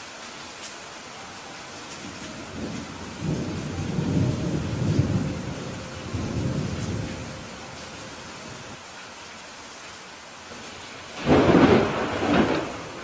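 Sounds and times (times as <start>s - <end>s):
steady rain falling: 0.0s - 13.0s
thunder rumbling: 2.0s - 8.8s, 10.6s - 13.0s.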